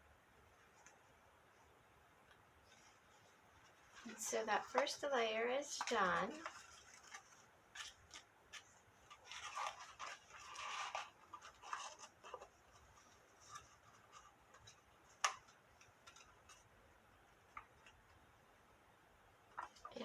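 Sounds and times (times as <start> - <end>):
cardstock rustling and tapping: 3.6 - 16.7, 19.5 - 20.0.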